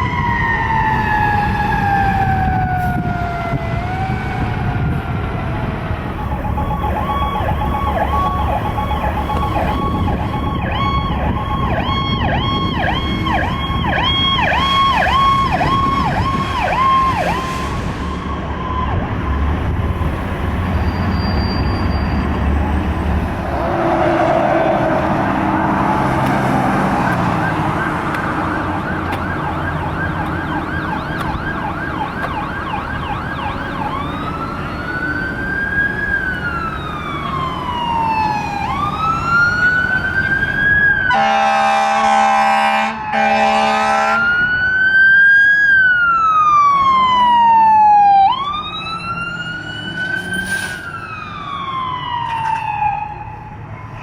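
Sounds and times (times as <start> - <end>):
siren yelp: 0.0 - 20.1, 20.7 - 54.0
siren wail rising and falling: 0.0 - 54.0
air horn blast: 41.1 - 44.3.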